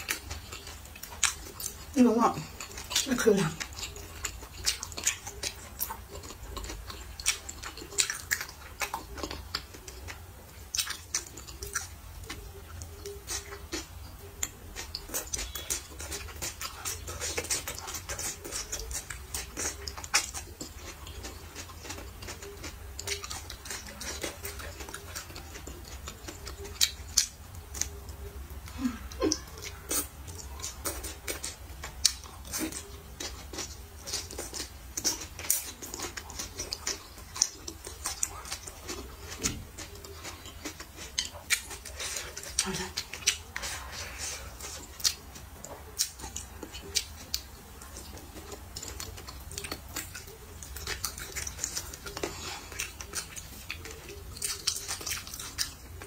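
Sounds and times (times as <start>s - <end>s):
person chewing and lip smacking: 0.0s - 56.0s.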